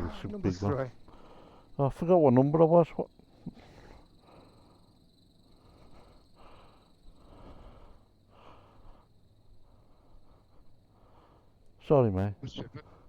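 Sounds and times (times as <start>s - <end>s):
faint breathing: 1.0s - 1.8s, 3.3s - 11.8s, 12.8s - 13.0s.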